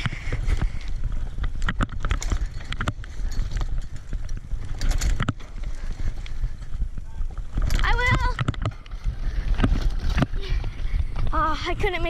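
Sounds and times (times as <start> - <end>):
bicycle rattling on dirt trail: 0.0 - 12.0.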